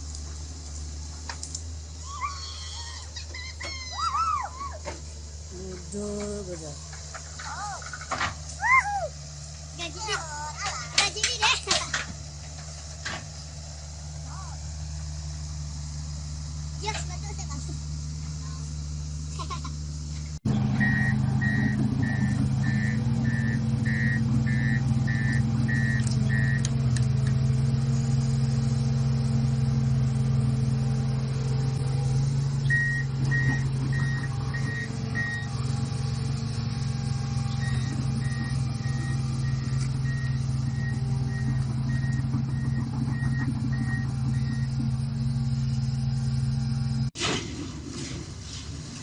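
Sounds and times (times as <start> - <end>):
vehicle engine running: 0.0 - 49.0
reversing alarm beeping: 20.8 - 26.7, 32.6 - 36.4, 37.1 - 47.0.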